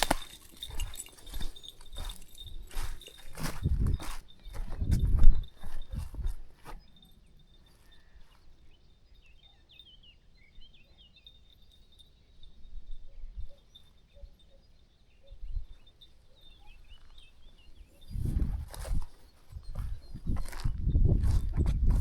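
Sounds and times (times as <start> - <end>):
small birds chirping: 0.0 - 22.0
soft low thumps: 1.9 - 6.6, 18.2 - 22.0.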